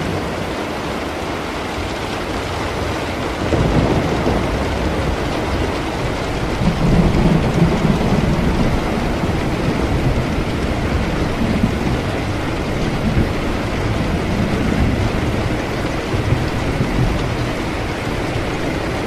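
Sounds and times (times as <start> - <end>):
steady rain: 0.0 - 19.0
rolling thunder rumble: 2.8 - 19.0.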